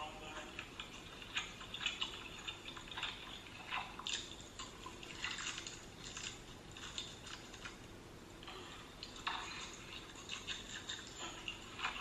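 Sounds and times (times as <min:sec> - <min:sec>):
chewing crunchy fried food: 0:00.6 - 0:07.8, 0:08.4 - 0:12.0.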